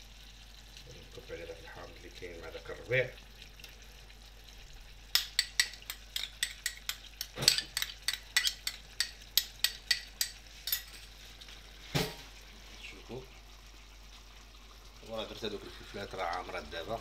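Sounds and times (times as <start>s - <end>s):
spoon clinking against a dish: 5.1s - 11.0s.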